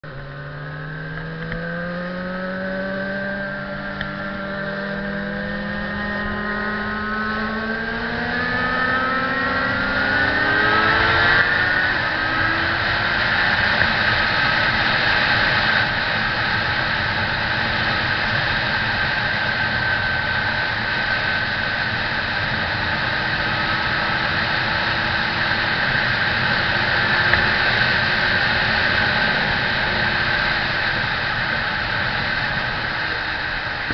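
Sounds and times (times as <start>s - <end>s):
motorcycle engine accelerating: 0.0s - 33.9s
rush of noise: 0.0s - 33.9s.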